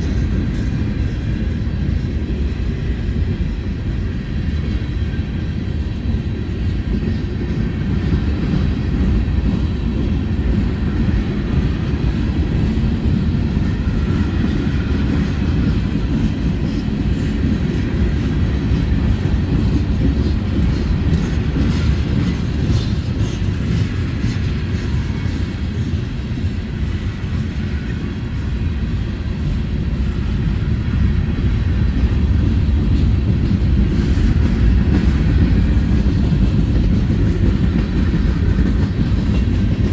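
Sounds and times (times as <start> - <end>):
freight train rumbling on rails: 0.0 - 39.9.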